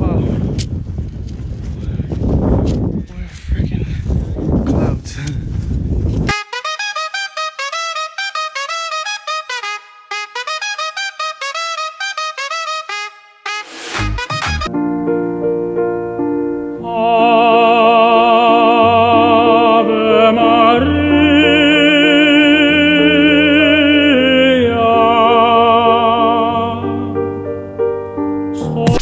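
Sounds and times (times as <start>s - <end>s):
sustained keyboard chords: 14.0s - 29.0s
operatic voice singing: 16.8s - 27.4s, 28.5s - 29.0s.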